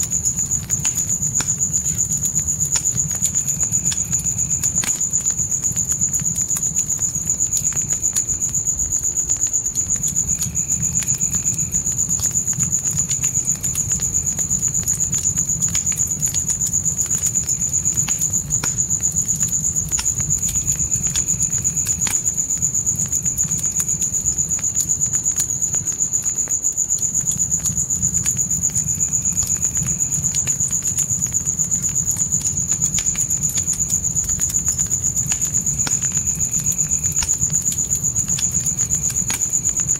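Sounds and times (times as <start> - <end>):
crickets chirping: 0.0 - 39.9
fire crackling and popping: 0.0 - 39.9.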